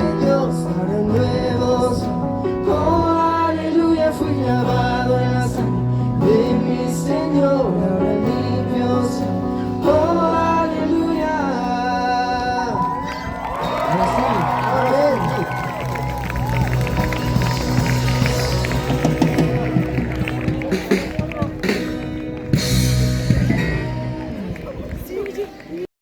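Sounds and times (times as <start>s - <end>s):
voices singing worship song: 0.0s - 13.1s
instrumental accompaniment: 12.8s - 24.5s.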